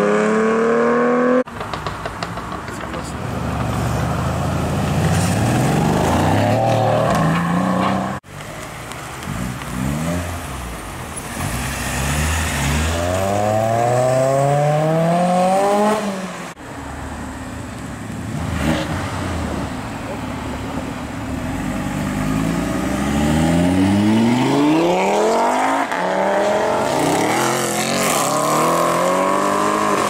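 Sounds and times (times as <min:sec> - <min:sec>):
car engines accelerating hard: 0:09.1 - 0:16.4, 0:18.2 - 0:30.0.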